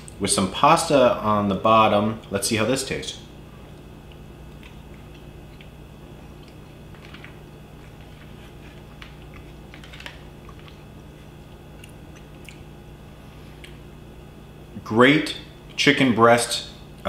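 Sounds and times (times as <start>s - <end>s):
low room hum: 0.0s - 17.0s
man chewing food: 3.5s - 14.0s.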